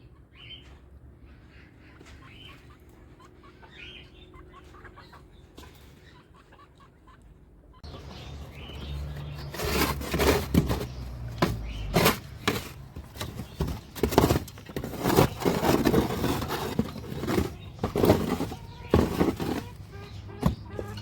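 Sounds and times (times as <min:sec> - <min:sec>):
knocks clicks and scraping: 0:07.8 - 0:21.0.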